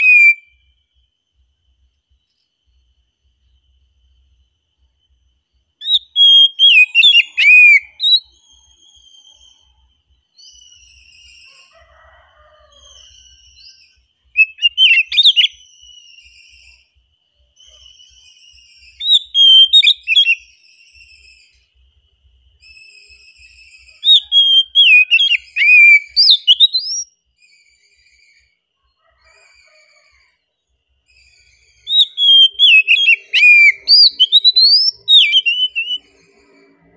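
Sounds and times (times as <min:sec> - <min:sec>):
bird singing whistled phrases: 0:00.0 - 0:00.6, 0:05.8 - 0:09.8, 0:10.4 - 0:11.7, 0:12.9 - 0:16.8, 0:17.6 - 0:21.6, 0:22.6 - 0:28.5, 0:31.2 - 0:36.6.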